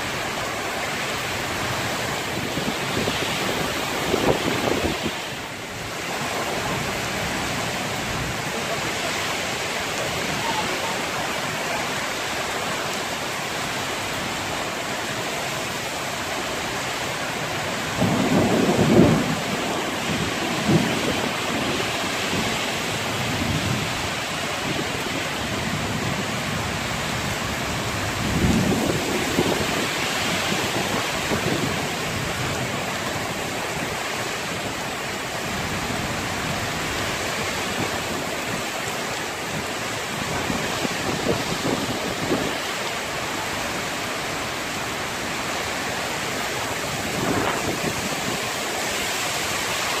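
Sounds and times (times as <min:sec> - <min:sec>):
heavy rain pouring: 0:00.0 - 0:50.0
wind buffeting microphone: 0:01.8 - 0:08.5, 0:27.6 - 0:32.9, 0:39.4 - 0:42.7, 0:46.7 - 0:49.6.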